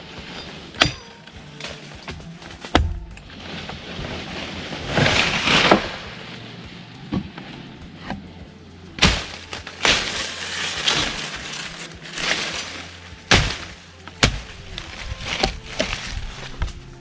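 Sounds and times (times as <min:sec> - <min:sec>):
leafy branches rustling: 0:00.0 - 0:17.0
blade chopping into wood: 0:09.0 - 0:12.7, 0:13.3 - 0:14.6.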